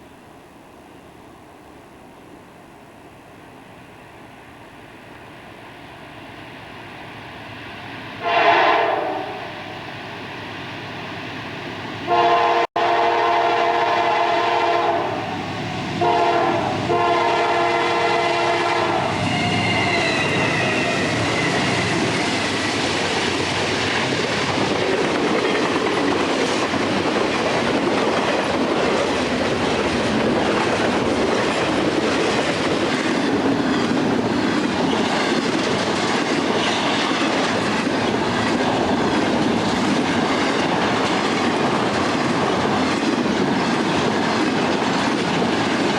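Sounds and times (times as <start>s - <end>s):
train wheels rumbling on rails: 2.6s - 45.9s
locomotive air horn blasts: 8.2s - 9.8s, 12.1s - 15.4s, 16.0s - 21.8s.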